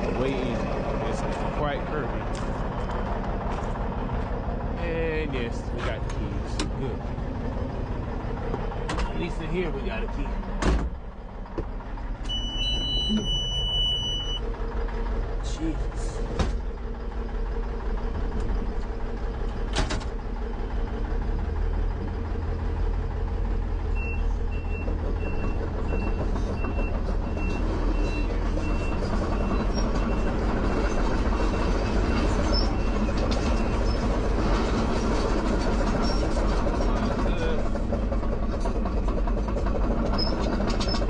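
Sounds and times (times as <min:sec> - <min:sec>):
heavy diesel engine running: 0:00.0 - 0:41.0
backup alarm beeping: 0:12.2 - 0:14.4.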